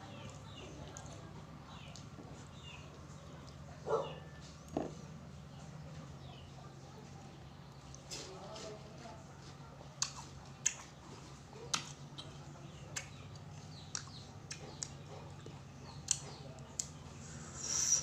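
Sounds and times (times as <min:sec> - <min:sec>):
faint low hum: 0:00.0 - 0:18.0
mouth clicks and smacks eating: 0:09.8 - 0:18.0.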